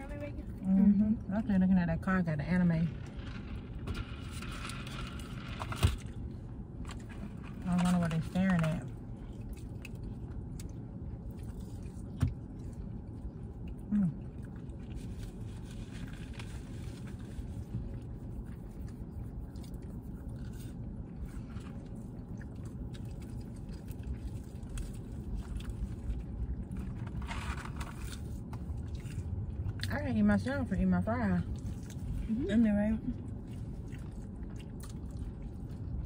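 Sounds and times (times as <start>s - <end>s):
low background hum: 0.0s - 36.0s
people chewing fried food: 8.2s - 30.0s, 31.4s - 36.0s.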